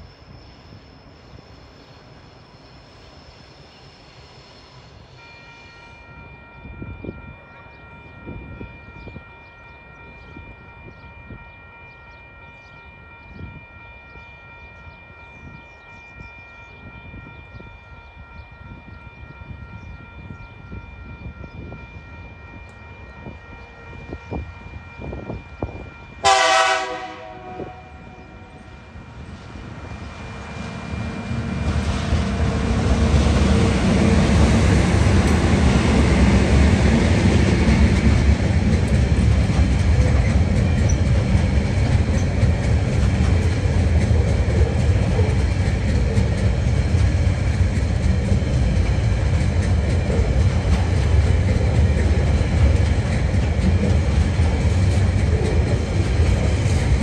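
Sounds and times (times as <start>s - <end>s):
train horn blast: 5.2s - 40.9s
locomotive engine rumble: 19.4s - 57.0s.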